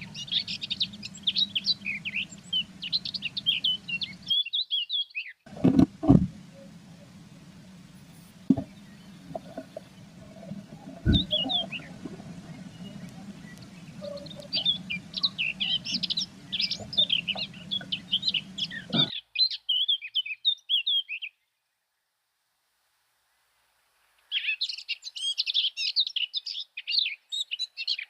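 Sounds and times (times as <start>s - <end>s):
low steady hum: 0.0s - 4.3s, 5.5s - 19.1s
songbirds chirping: 0.0s - 21.6s
thump: 5.6s - 6.4s.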